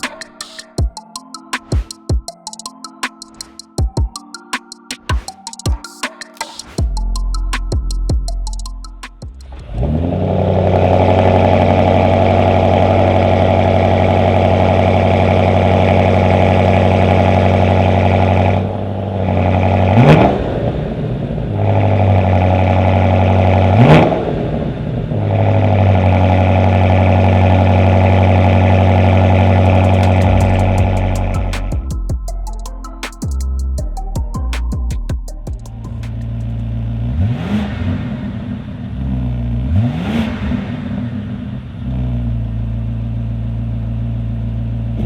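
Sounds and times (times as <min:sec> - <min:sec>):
engine revving: 0:09.4 - 0:31.9, 0:35.8 - 0:45.0
car engine starting and idling: 0:09.4 - 0:32.0, 0:35.5 - 0:45.0.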